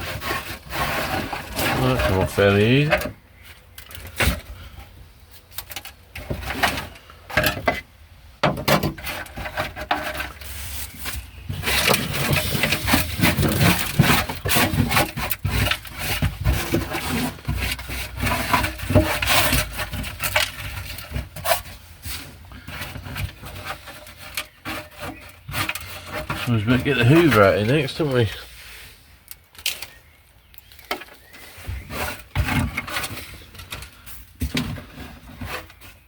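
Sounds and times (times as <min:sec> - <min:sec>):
hand scraper scraping steel floor: 0:00.0 - 0:03.1, 0:08.7 - 0:28.9, 0:31.4 - 0:36.0.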